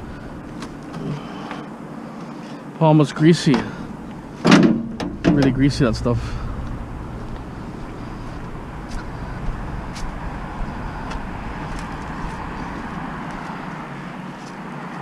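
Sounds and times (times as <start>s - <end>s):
van engine and road rumble: 0.0s - 15.0s.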